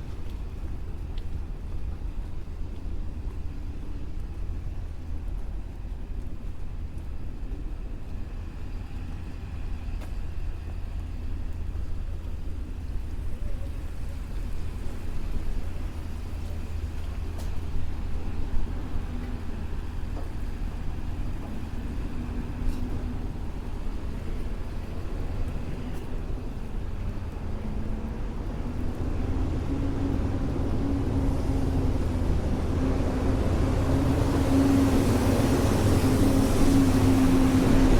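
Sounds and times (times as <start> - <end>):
traffic rumble: 8.8 - 37.9
approaching car engine: 27.2 - 37.9.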